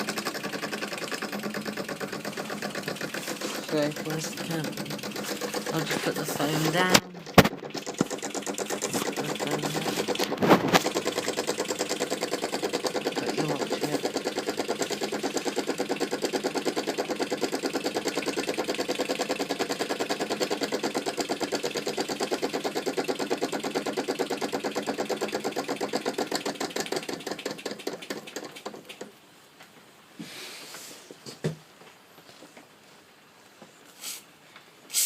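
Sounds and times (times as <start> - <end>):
toy steam engine chuffing: 0.0 - 29.1.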